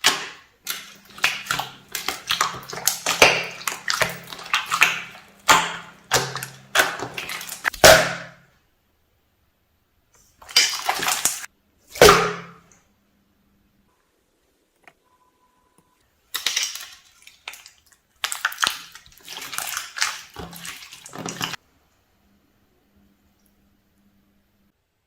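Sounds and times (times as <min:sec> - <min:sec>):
water pouring into container: 0:00.0 - 0:07.7, 0:10.4 - 0:11.5, 0:16.4 - 0:21.6.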